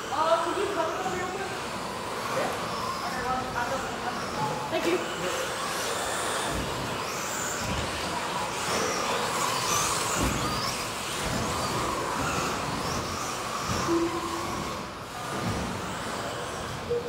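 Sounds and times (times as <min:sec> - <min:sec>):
electric motors whining: 0:00.0 - 0:17.0.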